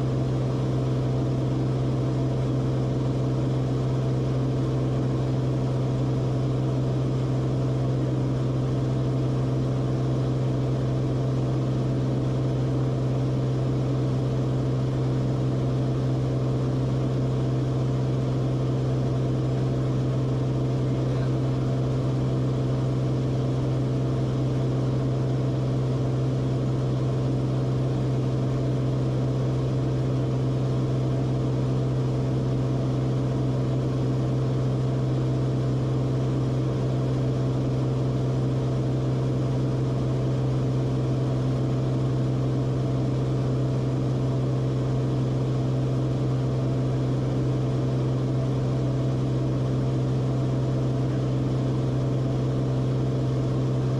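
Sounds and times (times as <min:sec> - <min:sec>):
airplane engine drone: 0:16.9 - 0:37.4.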